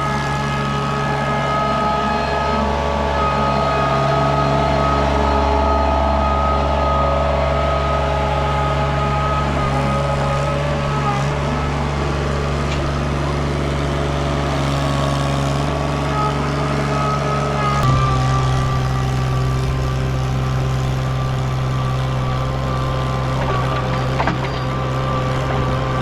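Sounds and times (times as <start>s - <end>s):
skid steer engine droning: 0.0s - 26.0s.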